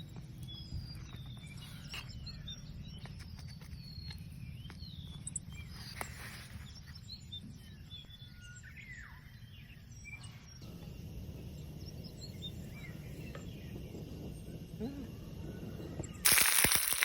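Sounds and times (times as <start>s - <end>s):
birds chirping: 0.0s - 17.0s
low outdoor rumble: 10.6s - 16.3s.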